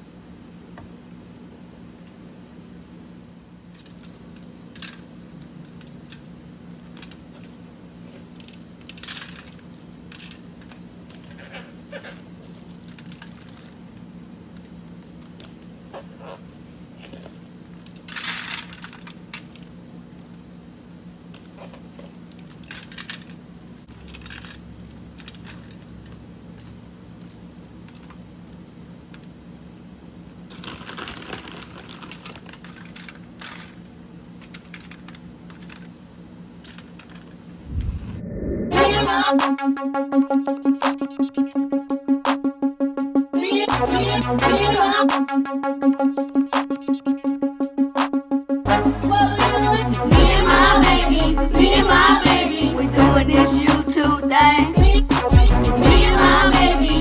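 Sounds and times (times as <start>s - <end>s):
crinkling and rustling: 14.6s - 20.5s, 21.3s - 29.4s, 30.5s - 37.6s
steady low hum: 37.6s - 57.0s.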